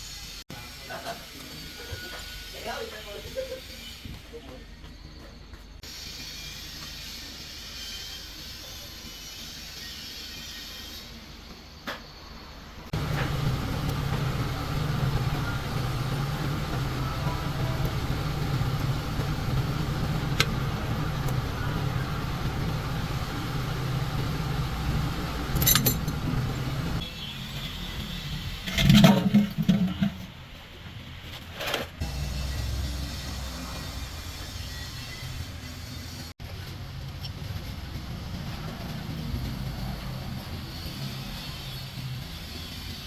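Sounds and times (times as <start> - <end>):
vehicle engine humming: 12.9 - 27.1, 32.0 - 41.4.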